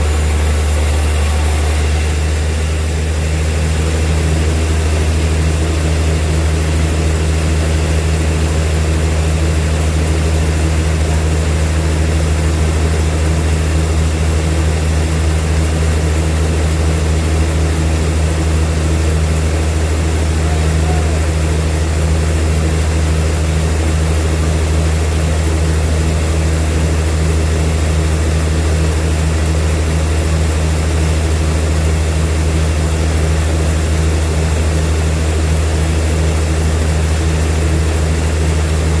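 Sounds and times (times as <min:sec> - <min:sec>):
sawmill machinery humming: 0:00.0 - 0:39.0.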